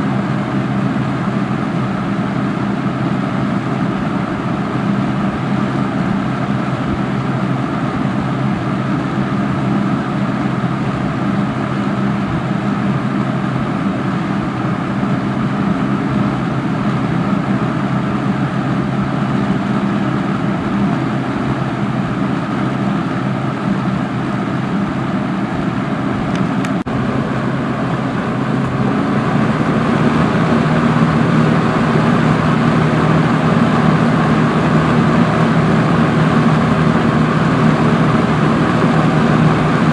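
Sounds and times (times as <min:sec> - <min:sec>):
box fan running: 0:00.0 - 0:39.9
click: 0:26.3 - 0:26.9.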